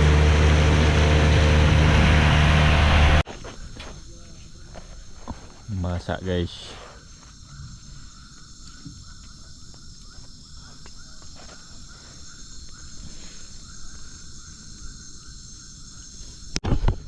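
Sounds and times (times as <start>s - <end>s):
low rumbling background: 0.0s - 3.2s
pulsing insect chirp: 3.3s - 16.6s
insects droning: 3.3s - 17.0s.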